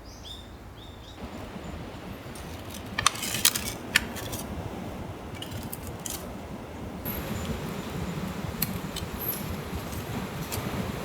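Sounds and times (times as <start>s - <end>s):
outdoor background noise: 0.0s - 11.0s
small metal objects clinking: 2.3s - 4.5s, 5.4s - 6.3s.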